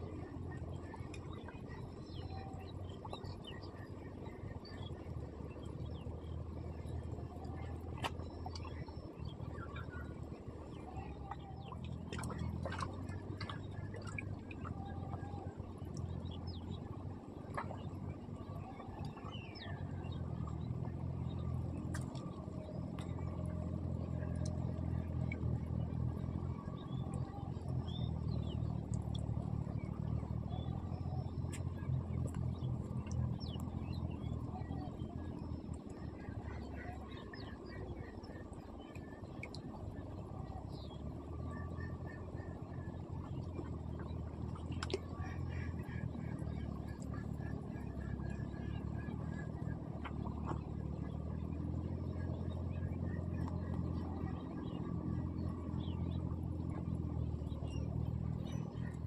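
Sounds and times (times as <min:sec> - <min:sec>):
low engine hum: 0:00.0 - 0:59.0
steady low rumble: 0:00.0 - 0:59.0
light clicks: 0:21.7 - 0:23.6.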